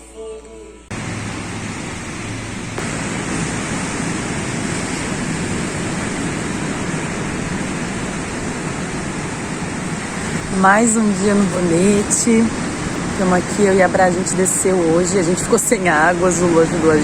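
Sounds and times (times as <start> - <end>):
music: 0.0 - 0.9
ocean surf rushing: 0.9 - 17.0.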